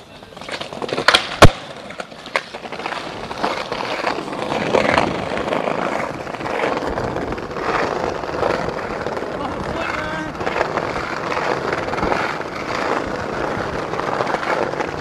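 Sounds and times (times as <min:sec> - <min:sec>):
skateboard clack: 0:00.0 - 0:15.0
skateboard wheels rolling: 0:00.0 - 0:15.0
skateboard deck pop: 0:00.4 - 0:08.6
skateboard slamming on ground: 0:00.4 - 0:15.0.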